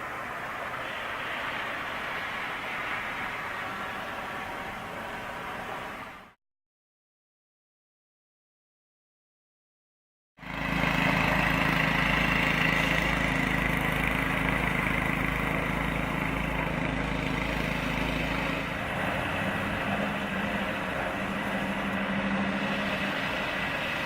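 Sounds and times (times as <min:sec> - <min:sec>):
engine running steadily: 0:10.4 - 0:24.0.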